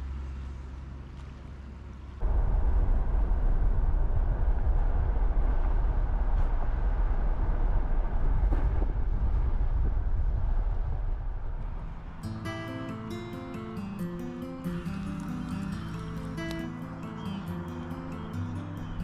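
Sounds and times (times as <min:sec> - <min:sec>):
vehicle rumble and road noise: 0:00.0 - 0:19.0
background music: 0:12.1 - 0:19.0.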